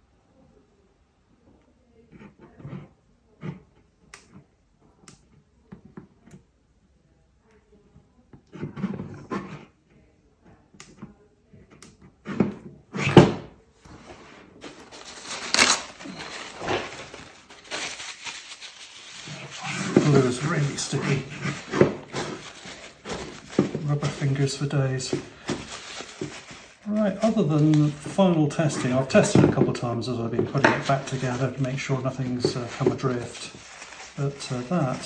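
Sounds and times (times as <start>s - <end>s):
rubbing and scraping: 13.9s - 35.0s.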